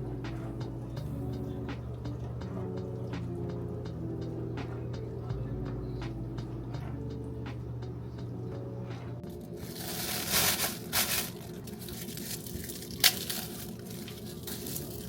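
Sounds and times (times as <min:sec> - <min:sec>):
crinkling and rustling: 0:08.9 - 0:15.0.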